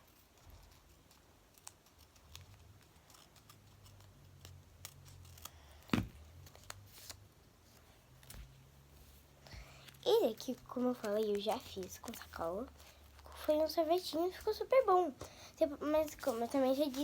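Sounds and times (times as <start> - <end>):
scissors snipping paper: 0.0 - 7.1, 9.5 - 14.4.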